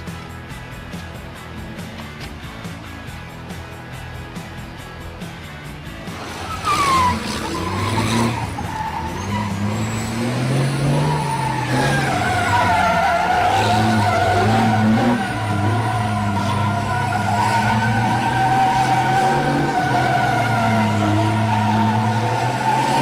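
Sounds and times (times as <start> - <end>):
truck diesel engine labouring: 0.0 - 23.0
high squeal: 6.3 - 23.0.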